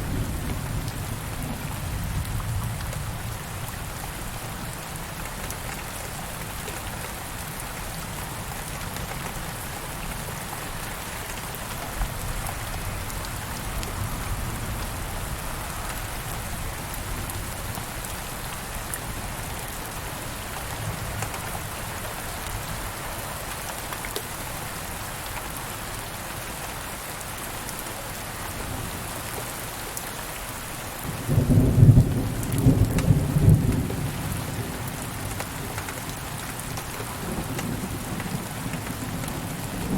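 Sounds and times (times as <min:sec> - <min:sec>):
steady rain falling: 0:00.0 - 0:39.9
thunder rumbling: 0:37.2 - 0:39.9.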